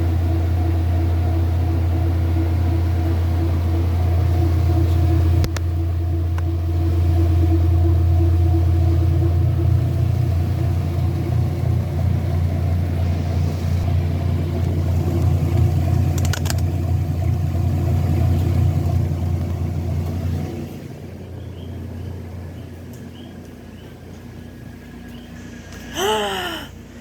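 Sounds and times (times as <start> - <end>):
washing machine humming: 0.0 - 27.0
click: 5.4 - 5.7.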